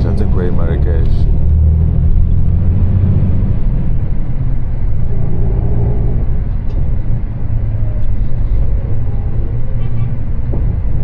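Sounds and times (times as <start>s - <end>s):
coach engine and road rumble: 0.0s - 11.0s.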